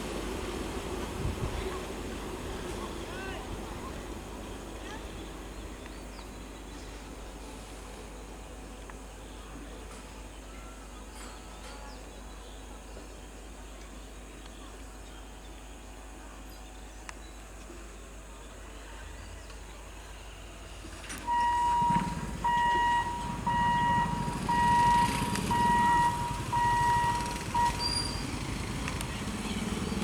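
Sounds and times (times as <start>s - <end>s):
train rumble: 0.0s - 13.2s, 18.6s - 30.0s
single-pitched warning beep: 21.2s - 28.6s.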